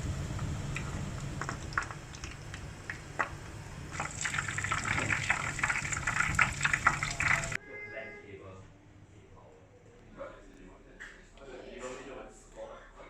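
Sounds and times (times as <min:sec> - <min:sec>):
pan sizzling: 0:00.0 - 0:07.6
steady low hum: 0:00.0 - 0:07.6
liquid being poured: 0:00.7 - 0:07.6.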